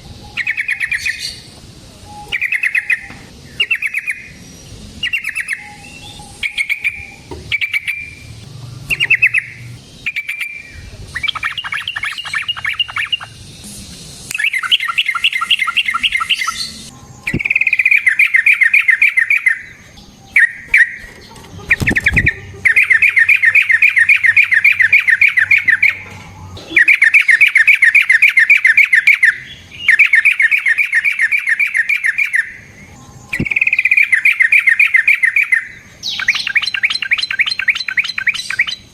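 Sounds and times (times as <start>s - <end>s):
bird chirping and rattling calls: 0.2s - 1.5s, 2.3s - 13.5s, 14.3s - 32.7s, 33.3s - 38.9s
sharp click: 17.3s - 17.7s.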